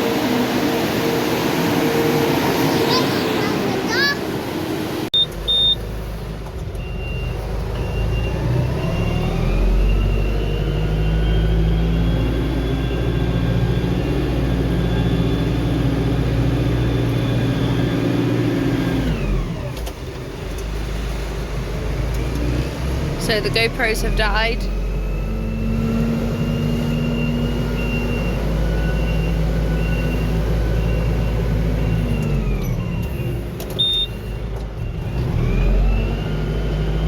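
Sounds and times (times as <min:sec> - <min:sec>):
farm machinery engine revving: 0:07.4 - 0:33.6, 0:34.8 - 0:37.0.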